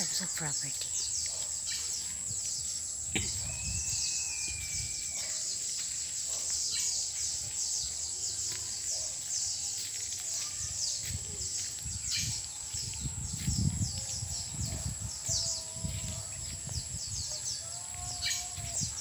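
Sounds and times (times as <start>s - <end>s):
small birds chirping: 0.0s - 19.0s
bird whistled note: 3.4s - 5.3s.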